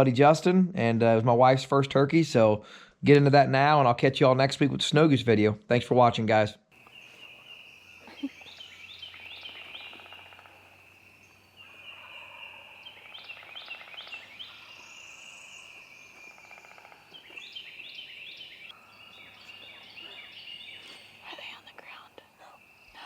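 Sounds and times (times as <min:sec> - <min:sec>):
songbirds singing: 0:05.4 - 0:23.0.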